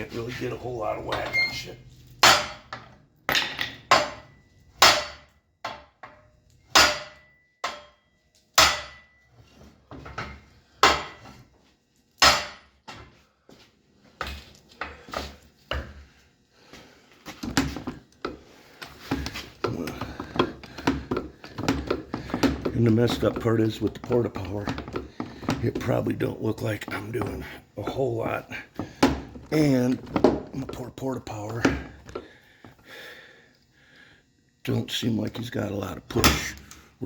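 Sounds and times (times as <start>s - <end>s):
hammer striking steel: 2.2s - 2.7s, 3.3s - 5.8s, 6.7s - 8.0s, 8.6s - 9.2s, 12.2s - 12.7s.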